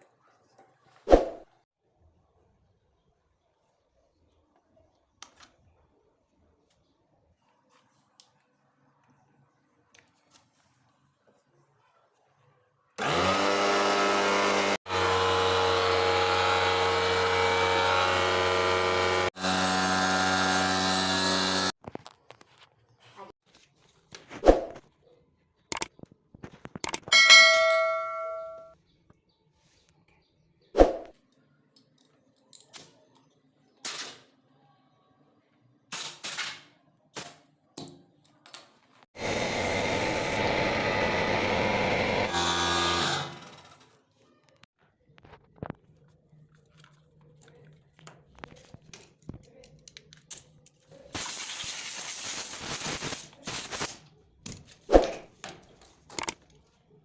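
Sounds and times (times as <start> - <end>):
sharp clicks: 25.7 - 25.9, 26.7 - 27.1
air compressor motor hum: 39.2 - 43.3.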